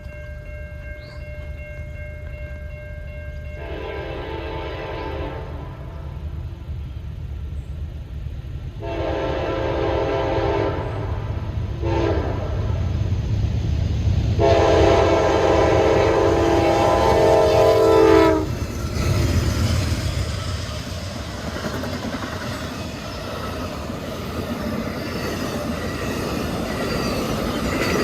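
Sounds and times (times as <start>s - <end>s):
train rumble: 0.0s - 28.0s
locomotive air horn blasts: 3.6s - 6.2s, 8.8s - 11.2s, 11.8s - 12.6s, 14.4s - 18.6s.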